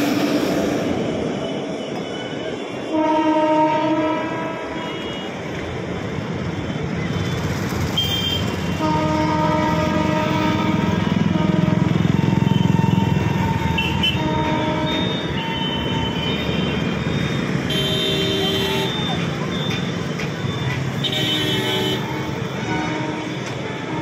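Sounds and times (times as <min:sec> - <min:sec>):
train rumbling along track: 0:00.0 - 0:24.0
train horn chord: 0:02.9 - 0:05.3, 0:08.7 - 0:15.2, 0:21.1 - 0:24.0.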